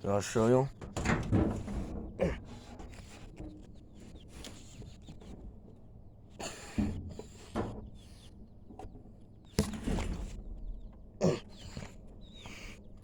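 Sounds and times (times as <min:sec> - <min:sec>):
faint chickens: 0:10.6 - 0:13.0.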